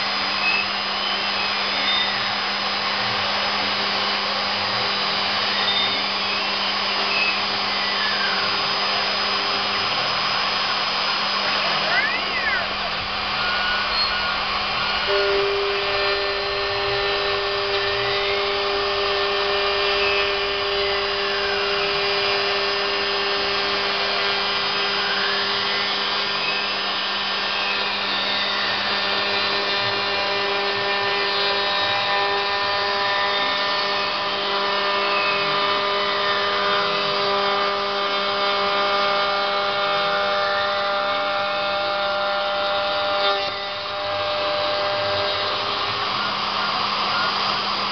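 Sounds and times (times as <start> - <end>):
spindle motor humming: 0.0 - 47.9
stepper motors whining: 0.0 - 47.9
steady tone: 9.4 - 23.8.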